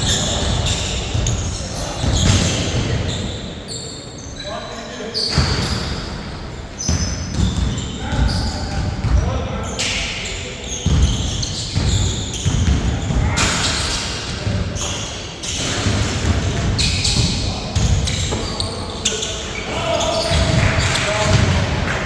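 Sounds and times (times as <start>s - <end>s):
basketball bouncing on court: 6.8s - 9.3s, 10.6s - 14.9s, 15.5s - 18.7s, 20.1s - 22.0s.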